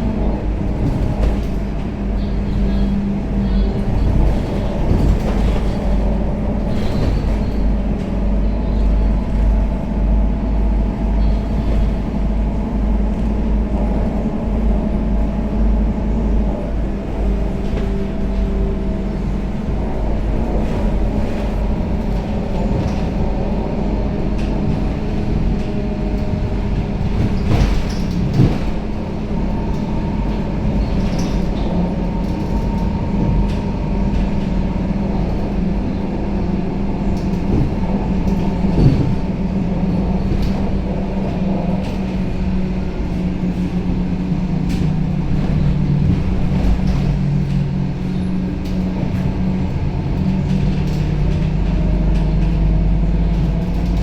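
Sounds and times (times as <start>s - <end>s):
bus engine: 0.0s - 54.0s
body knocks and rattles: 36.7s - 42.6s.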